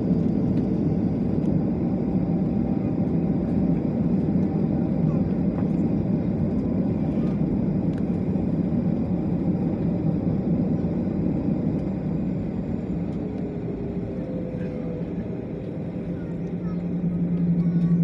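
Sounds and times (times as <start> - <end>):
jet airliner cabin rumble: 0.0 - 18.0.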